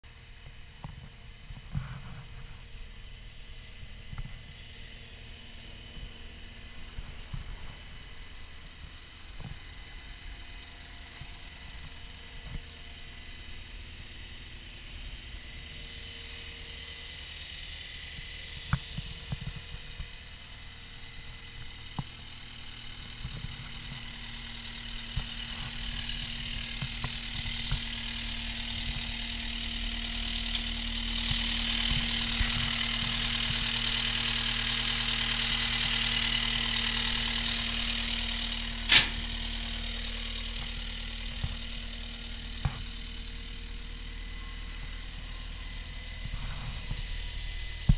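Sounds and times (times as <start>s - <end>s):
diesel engine idling: 0.0s - 47.9s.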